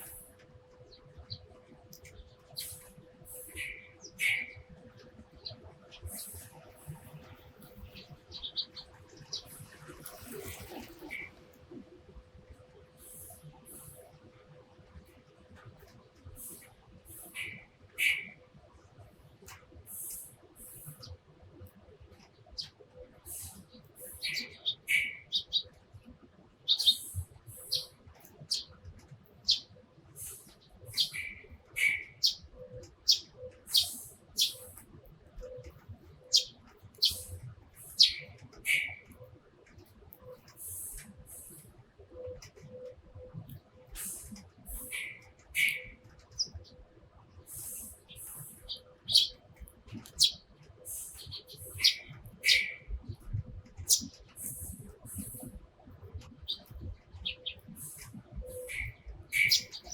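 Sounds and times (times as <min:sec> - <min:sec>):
sparrows chirping: 0:00.0 - 0:11.4, 0:13.0 - 0:14.1, 0:16.3 - 0:18.4, 0:19.9 - 0:21.1, 0:22.5 - 0:25.8, 0:26.6 - 0:28.8, 0:29.4 - 0:34.8, 0:35.4 - 0:39.2, 0:40.5 - 0:41.6, 0:43.9 - 0:46.8, 0:47.5 - 0:53.2, 0:53.8 - 0:55.6, 0:56.4 - 0:59.9.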